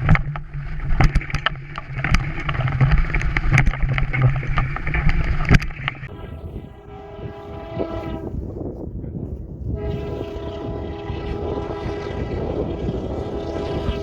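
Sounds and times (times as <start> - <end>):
train rumbling: 6.0 - 14.0
train horn blasts: 6.1 - 8.9, 9.6 - 14.0.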